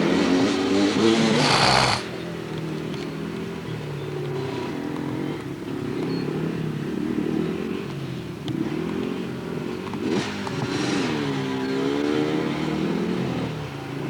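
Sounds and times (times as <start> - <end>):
dirt bike engine revving: 0.3 - 2.1.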